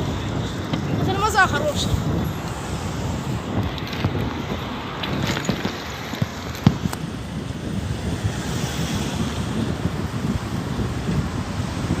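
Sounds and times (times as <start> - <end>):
wind buffeting microphone: 0.0 - 12.0
bicycle knocks and rattles: 3.5 - 7.2.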